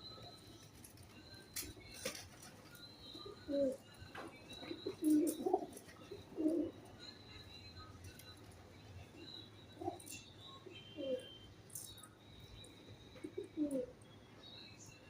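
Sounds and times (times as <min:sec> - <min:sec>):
pigeons cooing: 0:01.6 - 0:06.9, 0:10.9 - 0:11.3, 0:13.2 - 0:14.0.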